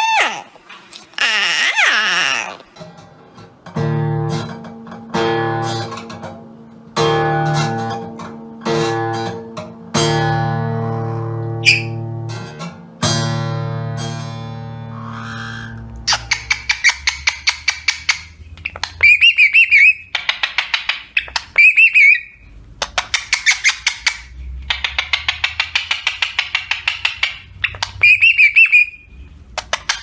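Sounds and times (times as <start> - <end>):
acoustic guitar strumming: 3.0 - 15.1.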